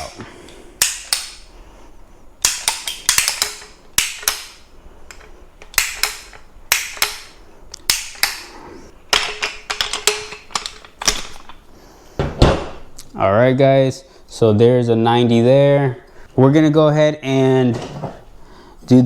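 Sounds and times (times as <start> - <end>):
ratcheting tube bender clacking: 2.4 - 8.5.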